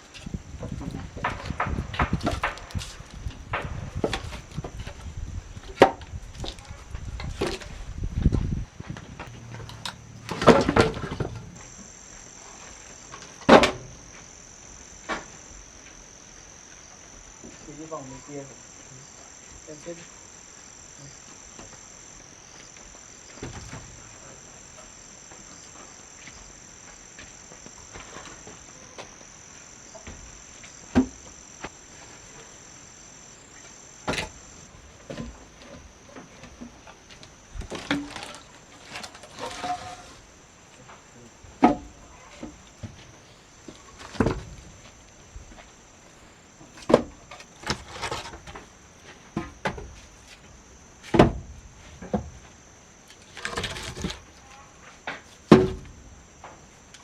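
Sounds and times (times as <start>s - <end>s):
high insect drone: 0.0s - 57.0s
high-pitched insect drone: 8.9s - 36.2s.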